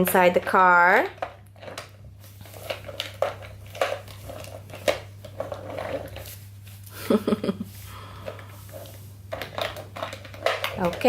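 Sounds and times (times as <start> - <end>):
light plastic scraping: 0.0 - 6.8
faint steady hum: 0.0 - 11.0.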